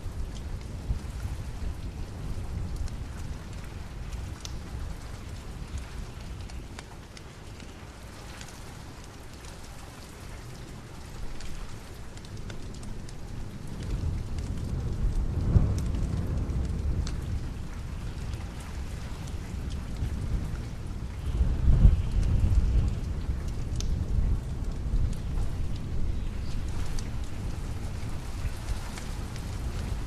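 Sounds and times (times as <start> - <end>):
steady rain: 0.0 - 30.0
thunder rumbling: 13.6 - 30.0.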